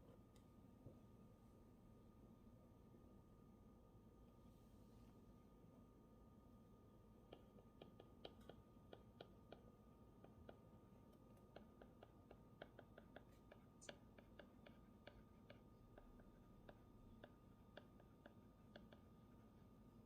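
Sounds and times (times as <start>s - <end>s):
faint steady hum: 0.0s - 20.0s
faint irregular desk clicks: 7.3s - 19.7s.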